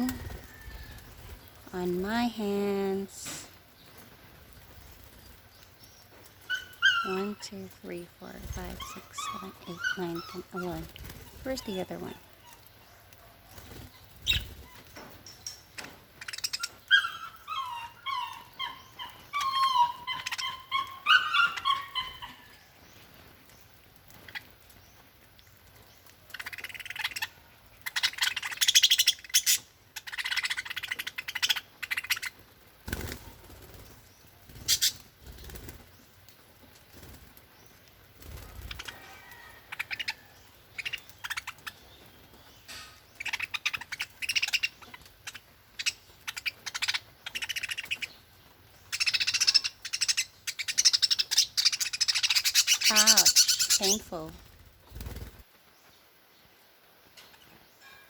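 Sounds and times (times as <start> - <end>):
wings flapping: 0.0 - 2.4, 3.4 - 7.4, 8.2 - 12.7, 13.3 - 15.2, 25.6 - 42.5, 48.8 - 55.6
rapid bird warbling: 6.4 - 12.8, 16.2 - 22.6, 26.3 - 33.2, 34.6 - 35.7, 43.1 - 48.2, 48.8 - 55.4
budgerigars chirping: 6.5 - 7.7, 8.5 - 10.9, 15.8 - 22.4, 26.3 - 32.3, 34.6 - 35.0, 38.6 - 48.2, 48.8 - 54.3.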